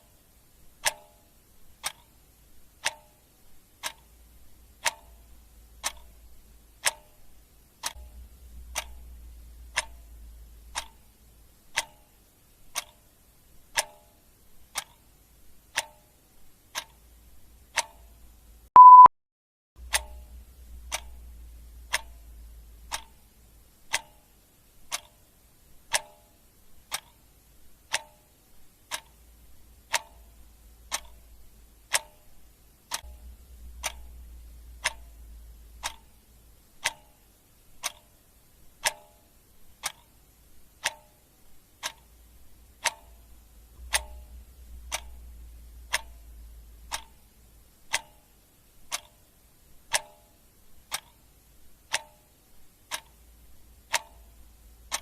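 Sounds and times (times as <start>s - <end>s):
clock ticking: 0.0s - 19.1s, 19.8s - 55.0s
faint low hum: 0.0s - 19.1s, 19.8s - 55.0s.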